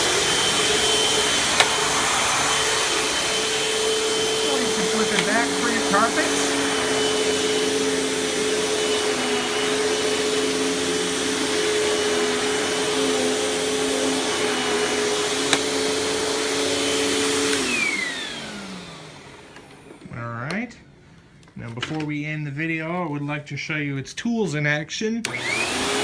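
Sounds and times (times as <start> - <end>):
vacuum cleaner motor running: 0.0 - 20.1, 25.3 - 26.0.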